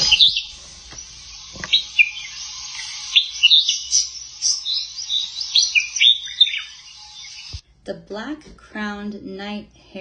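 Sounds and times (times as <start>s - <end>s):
bird chirping: 0.0s - 7.6s
steady hiss: 0.0s - 7.6s.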